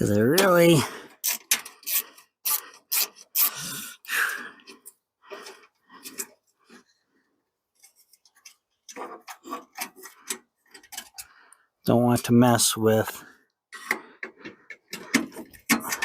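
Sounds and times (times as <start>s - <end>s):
hand tool scraping screws: 0.0s - 6.9s, 7.8s - 11.4s, 13.7s - 16.0s.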